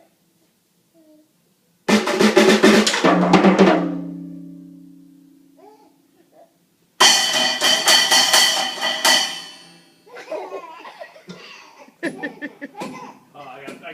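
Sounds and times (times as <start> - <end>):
metallic crash: 7.0 - 9.9
people laughing: 10.1 - 13.0.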